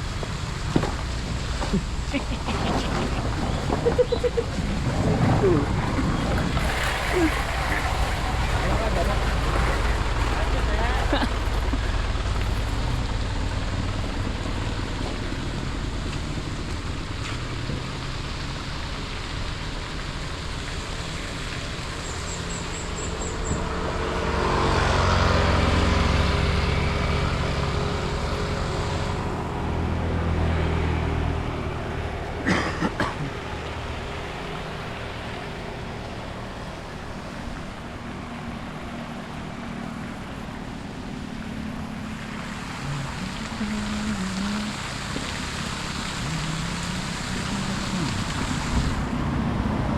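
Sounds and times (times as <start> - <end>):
vehicle passing close: 0.0 - 18.4
traffic hiss: 0.0 - 49.8.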